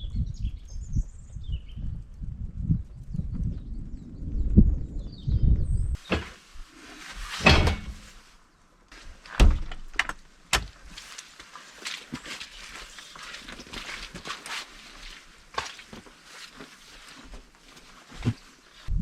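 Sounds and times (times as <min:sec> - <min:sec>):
heavy thuds and knocks: 0:07.4 - 0:08.1.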